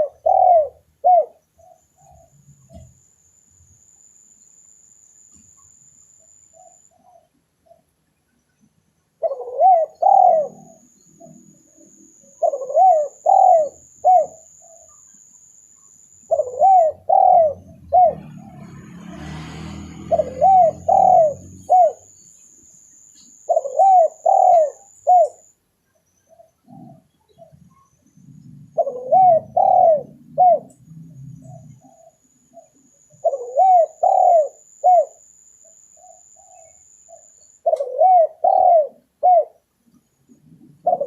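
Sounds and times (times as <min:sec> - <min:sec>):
dove cooing: 0:00.0 - 0:03.0, 0:09.2 - 0:15.0, 0:15.9 - 0:18.7, 0:19.9 - 0:22.2, 0:23.4 - 0:25.5, 0:26.3 - 0:35.2, 0:36.0 - 0:39.6, 0:40.3 - 0:41.0
faint high whine: 0:01.4 - 0:07.2, 0:10.0 - 0:19.1.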